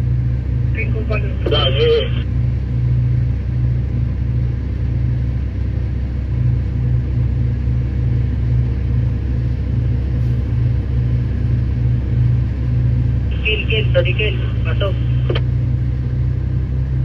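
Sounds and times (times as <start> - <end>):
excavator diesel engine rumbling: 0.0 - 2.4, 9.5 - 17.0.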